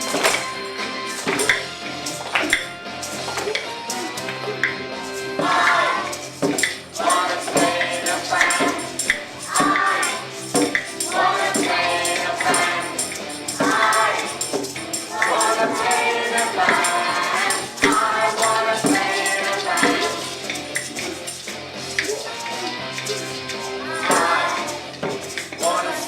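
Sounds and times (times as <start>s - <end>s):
musical accompaniment: 0.0s - 26.0s
children singing together: 5.4s - 10.4s, 11.0s - 20.6s, 23.6s - 26.0s.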